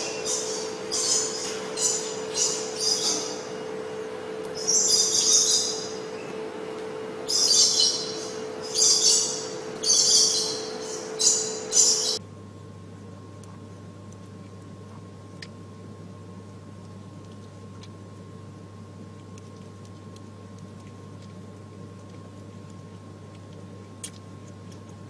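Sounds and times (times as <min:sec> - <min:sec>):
high-pitched chirping calls: 0:00.0 - 0:03.5, 0:04.6 - 0:06.3, 0:07.3 - 0:12.2
steady hum: 0:00.0 - 0:25.0.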